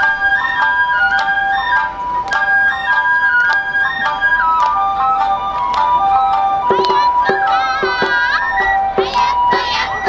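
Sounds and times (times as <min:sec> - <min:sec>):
bamboo flute melody: 0:00.0 - 0:10.0
wavering call: 0:00.0 - 0:10.0
sharp percussion strikes: 0:06.6 - 0:10.0.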